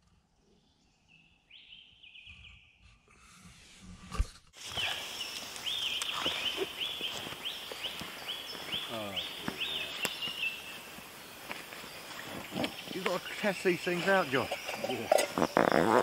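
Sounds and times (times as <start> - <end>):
bird singing whistled notes: 1.0 - 2.8.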